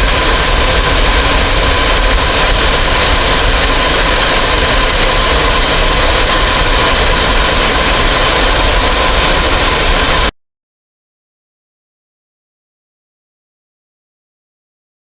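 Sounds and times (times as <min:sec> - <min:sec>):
aircraft engine noise: 0:00.0 - 0:10.3.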